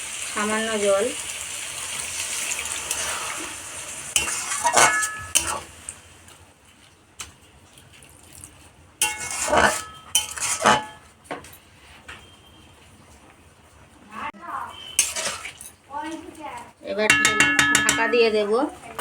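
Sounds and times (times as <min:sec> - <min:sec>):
spatula scraping metal pan: 0:02.8 - 0:05.7, 0:09.0 - 0:11.1, 0:14.8 - 0:15.7.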